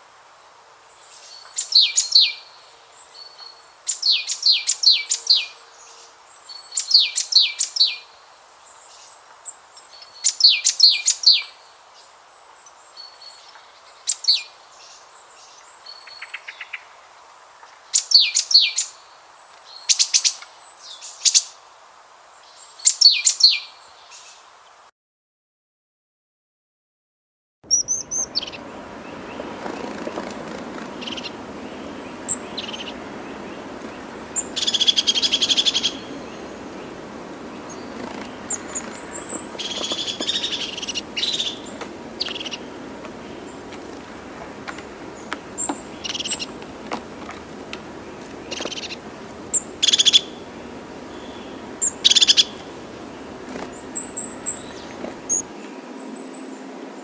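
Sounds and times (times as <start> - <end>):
outdoor background: 27.6 - 57.0
birds chirping and chattering: 27.7 - 56.5.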